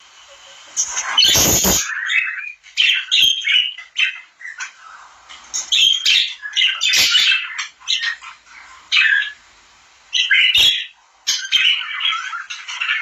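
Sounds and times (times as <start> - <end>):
birds chirping: 0.0 - 9.5, 10.1 - 13.0.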